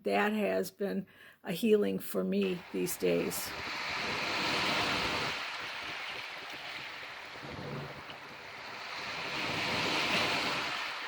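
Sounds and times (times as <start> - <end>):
waves washing onto shore: 2.4 - 11.0.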